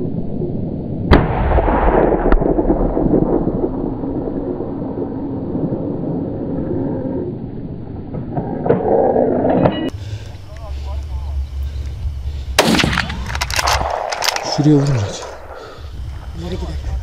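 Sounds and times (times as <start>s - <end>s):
steady low rumble: 0.0s - 17.0s
rifle shots echoing: 12.6s - 15.8s.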